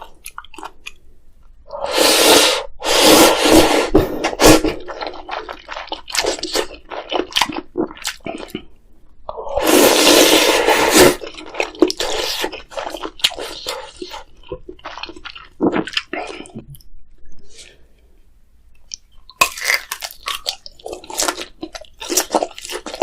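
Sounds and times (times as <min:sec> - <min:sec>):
loud slurp of noodles: 0:01.8 - 0:04.8, 0:09.6 - 0:11.2.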